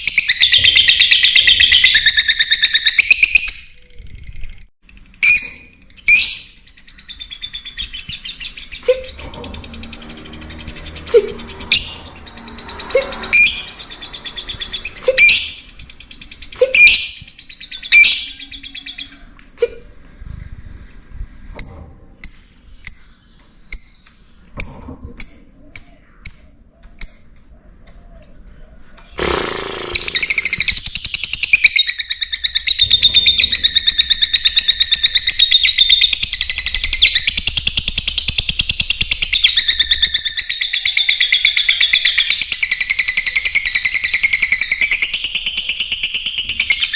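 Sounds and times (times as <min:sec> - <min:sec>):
lovebirds chirping and calling: 0:00.0 - 0:19.4, 0:20.3 - 0:46.9.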